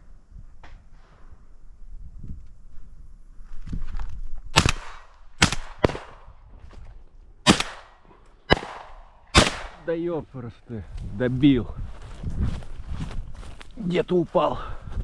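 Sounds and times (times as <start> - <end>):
shotgun shots: 4.5 - 6.4, 7.4 - 10.0.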